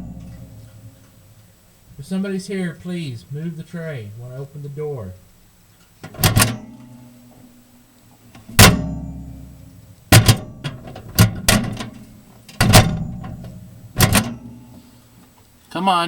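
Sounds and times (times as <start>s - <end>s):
microwave door clacking shut: 6.0s - 6.8s, 8.4s - 9.3s, 10.1s - 14.6s.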